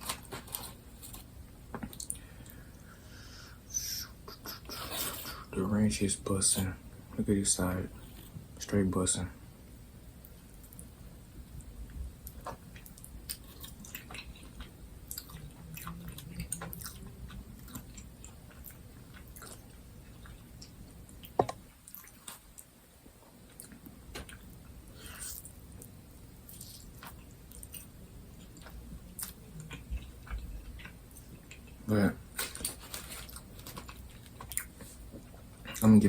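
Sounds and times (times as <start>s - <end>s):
person chewing food: 0.0s - 3.0s, 10.2s - 35.9s.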